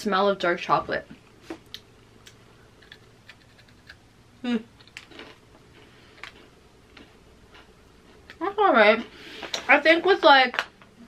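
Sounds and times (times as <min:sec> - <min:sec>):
chewing with small crunches: 0:01.6 - 0:04.0, 0:04.8 - 0:08.5.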